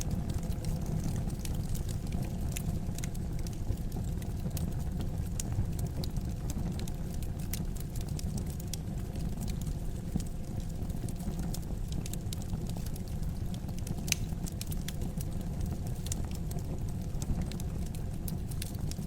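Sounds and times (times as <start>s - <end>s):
fire rumbling: 0.0s - 19.0s
logs crackling and popping: 0.0s - 19.0s.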